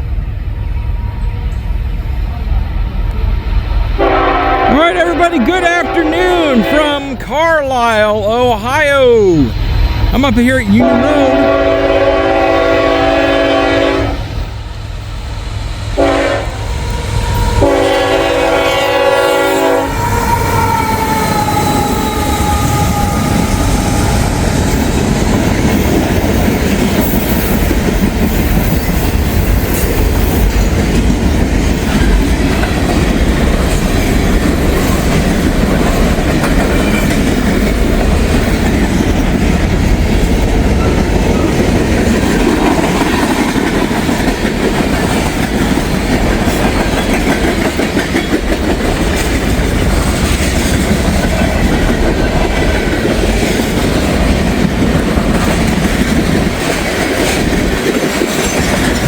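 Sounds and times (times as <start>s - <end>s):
train rumbling past: 0.0s - 59.0s
train horn: 4.0s - 7.0s, 10.8s - 14.4s, 16.0s - 24.5s.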